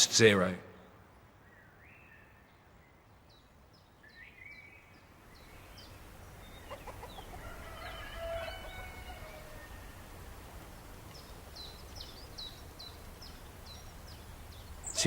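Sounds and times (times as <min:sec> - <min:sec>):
high falling bird chirps: 0:01.4 - 0:15.0
bird clucking calls: 0:05.4 - 0:15.0.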